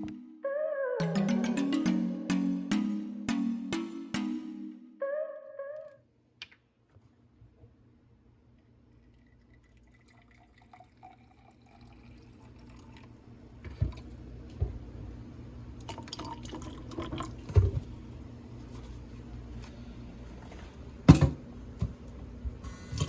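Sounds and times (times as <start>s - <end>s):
rising filling tone: 0.0s - 5.8s
water pouring into container: 9.0s - 13.1s.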